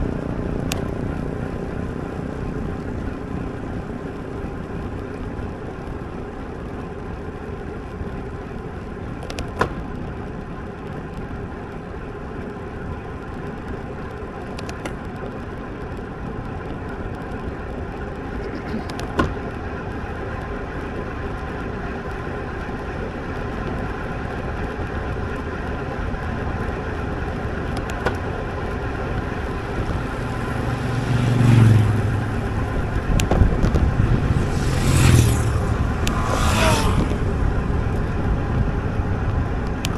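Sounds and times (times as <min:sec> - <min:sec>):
wind and road noise: 0:00.0 - 0:39.9
motor vehicle passing close: 0:29.2 - 0:39.6.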